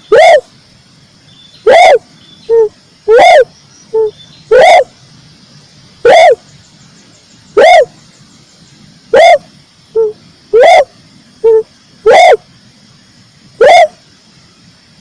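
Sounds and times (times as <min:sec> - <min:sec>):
dove cooing: 0:00.0 - 0:00.5, 0:01.6 - 0:04.9, 0:06.0 - 0:06.4, 0:07.6 - 0:07.9, 0:09.1 - 0:12.4, 0:13.6 - 0:14.0.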